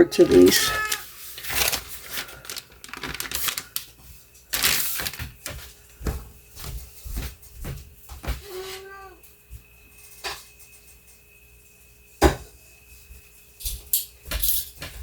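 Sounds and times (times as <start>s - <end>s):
utensils clattering on dishes: 0.1s - 3.6s, 13.7s - 15.0s
short rustles: 0.3s - 3.9s.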